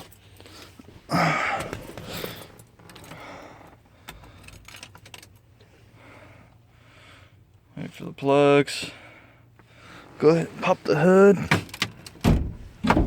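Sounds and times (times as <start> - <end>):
small clicks and rattles: 4.0 - 5.4.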